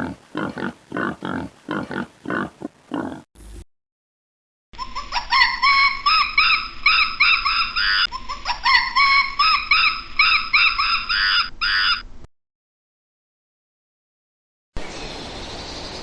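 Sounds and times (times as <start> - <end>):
bird chirping: 4.8 - 12.0, 14.8 - 16.0.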